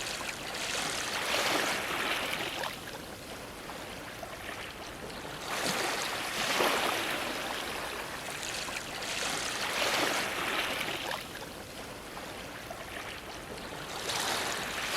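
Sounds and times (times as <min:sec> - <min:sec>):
waves splashing against a dock: 0:00.0 - 0:14.9.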